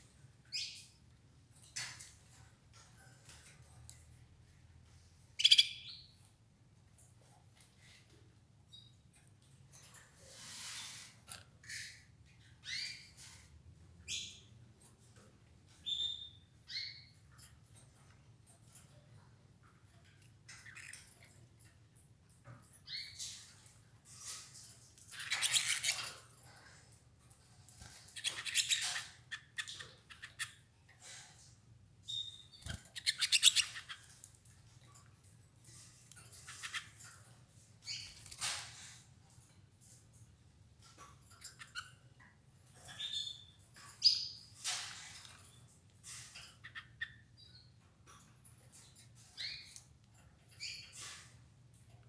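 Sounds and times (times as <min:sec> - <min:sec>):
canaries chirping: 0:00.0 - 0:06.4, 0:07.0 - 0:40.2, 0:40.8 - 0:52.0
light clicks and rustling: 0:01.5 - 0:05.0, 0:32.6 - 0:46.8.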